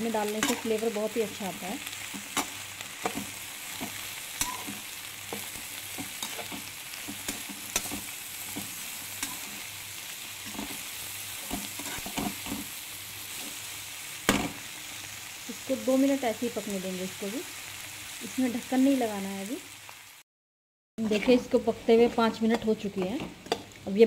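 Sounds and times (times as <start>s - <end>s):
vegetables sizzling in oil: 0.0s - 20.2s, 21.0s - 24.0s
spatula scraping pan: 11.4s - 12.7s.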